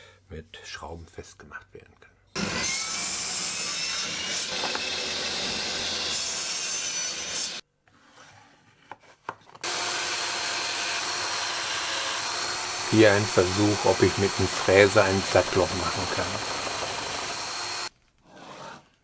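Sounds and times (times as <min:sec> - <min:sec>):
power drill cutting into wood: 0:02.4 - 0:07.6, 0:09.6 - 0:17.9.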